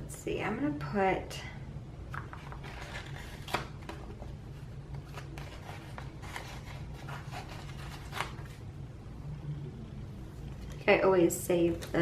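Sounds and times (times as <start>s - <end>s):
paper rustling: 2.1s - 8.6s.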